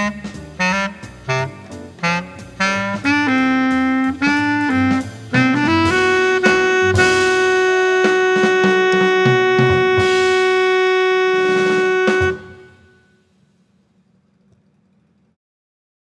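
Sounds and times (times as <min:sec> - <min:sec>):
walking bass: 0:00.0 - 0:12.7
saxophone playing: 0:00.0 - 0:13.2
drums: 0:00.0 - 0:14.6.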